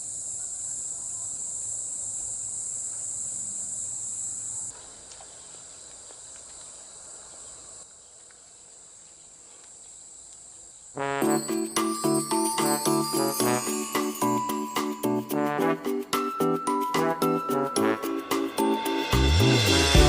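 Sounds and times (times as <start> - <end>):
insects trilling: 0.0 - 15.2.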